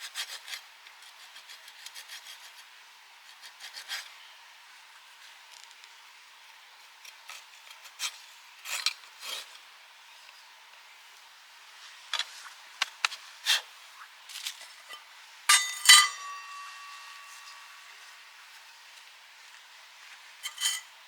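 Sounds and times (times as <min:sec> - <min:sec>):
cookware scraping and rubbing: 0:14.8 - 0:18.3, 0:20.4 - 0:21.0
ringing metal clinks: 0:15.5 - 0:17.8.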